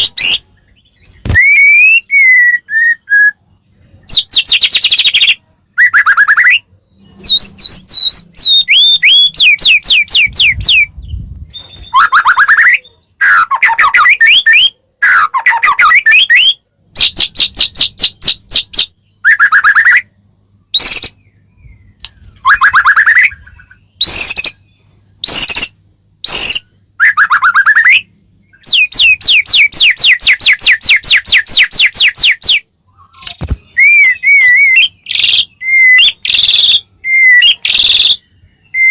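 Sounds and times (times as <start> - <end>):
songbird singing trills: 0.0 - 38.9.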